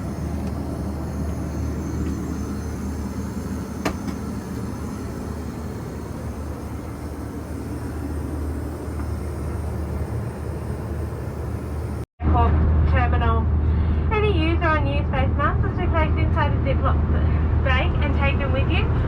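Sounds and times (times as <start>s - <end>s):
cabin air hiss: 0.0s - 12.0s
aircraft cabin engine rumble: 0.0s - 12.1s.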